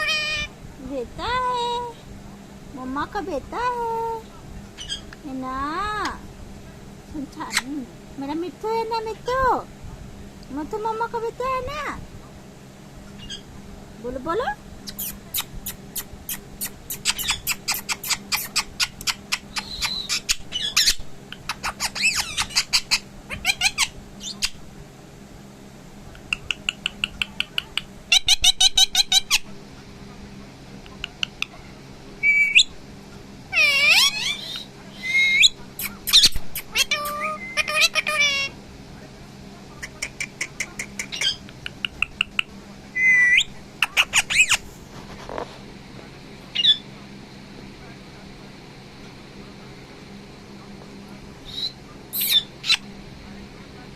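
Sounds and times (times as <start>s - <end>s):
parrot squawking: 0.0s - 0.5s, 4.8s - 5.0s, 14.9s - 24.6s, 28.1s - 29.4s, 33.5s - 38.6s, 39.8s - 41.4s, 43.0s - 44.6s, 46.6s - 46.8s, 51.5s - 52.8s
parrot chirping: 4.8s - 5.1s, 13.2s - 13.5s, 14.8s - 24.6s, 26.2s - 29.5s, 32.2s - 32.7s, 33.5s - 38.6s, 39.8s - 44.6s, 46.5s - 46.8s, 51.4s - 52.9s
parrot whistling: 14.9s - 20.9s, 32.2s - 32.7s, 33.6s - 38.5s, 43.0s - 44.6s, 51.5s - 52.8s.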